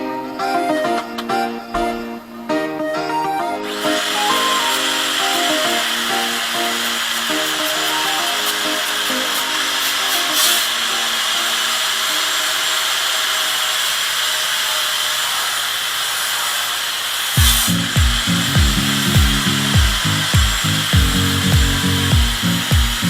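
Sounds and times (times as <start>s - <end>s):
background music with steady beat: 0.0s - 11.6s, 17.4s - 23.0s
power tool gritty hiss on metal: 3.7s - 23.0s.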